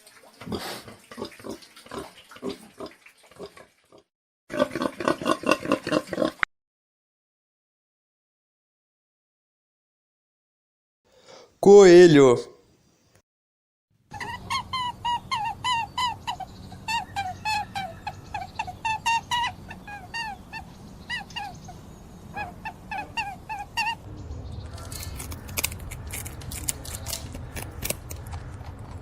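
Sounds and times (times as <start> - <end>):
squeaky animal calls: 14.1 - 27.8.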